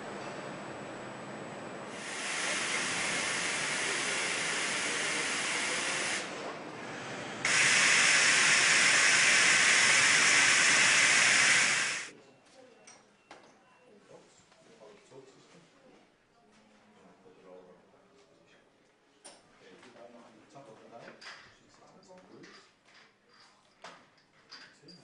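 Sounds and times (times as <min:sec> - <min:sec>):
steady hiss of rushing air: 0:01.9 - 0:06.4, 0:07.4 - 0:12.1.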